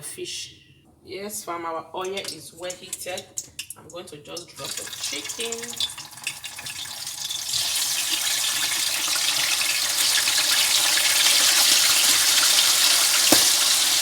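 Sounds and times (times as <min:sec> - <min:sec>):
chicken sizzling in hot oil: 0:04.6 - 0:14.0.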